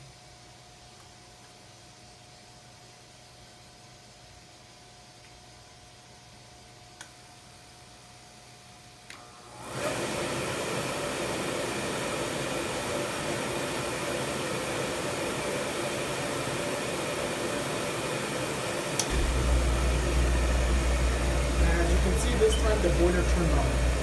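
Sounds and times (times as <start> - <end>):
boiler burner click: 19.0 - 24.0
burner blower rushing: 19.0 - 24.0
deep burner rumble: 19.1 - 24.0.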